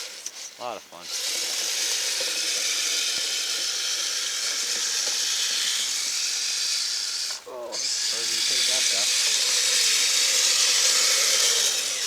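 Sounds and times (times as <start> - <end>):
toy snowcat whirring through snow: 0.0 - 12.0.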